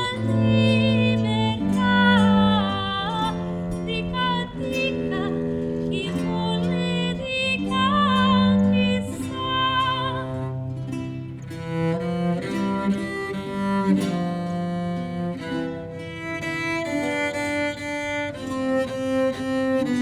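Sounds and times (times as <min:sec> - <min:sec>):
woman singing with vibrato: 0:00.0 - 0:10.8
held low string notes: 0:00.0 - 0:20.0.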